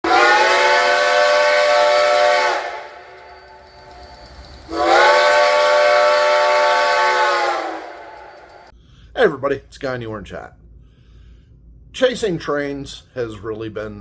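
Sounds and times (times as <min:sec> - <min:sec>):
steam locomotive whistle blasts: 0:00.0 - 0:08.7
steam hiss: 0:01.1 - 0:08.7.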